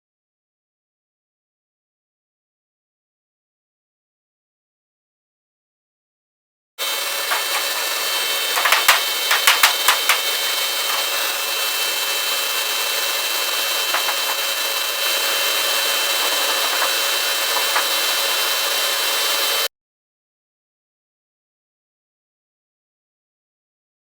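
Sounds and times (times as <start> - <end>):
power tool whining on sheet metal: 6.8 - 19.7
sharp clicks and knocks: 7.3 - 11.2, 13.2 - 19.7.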